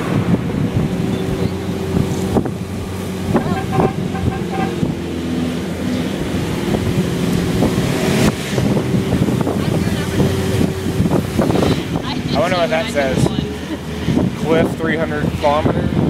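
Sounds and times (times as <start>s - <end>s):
road and wind noise: 0.0s - 16.0s
truck engine humming: 0.0s - 16.0s.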